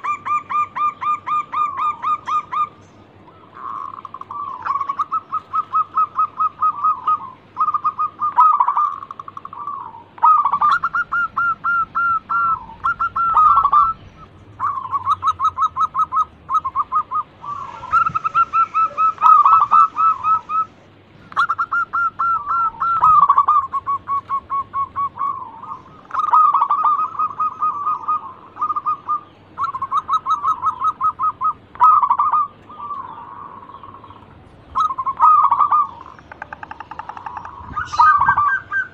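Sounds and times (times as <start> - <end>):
doves cooing: 0.0 - 38.9
higher-pitched bird notes: 0.0 - 38.9.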